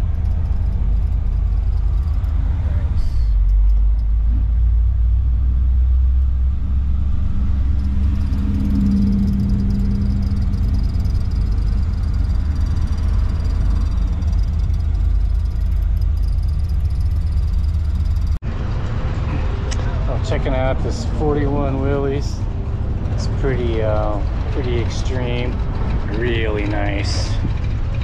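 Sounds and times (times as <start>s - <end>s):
hum: 0.0s - 20.1s
car engine and road rumble: 0.0s - 28.0s.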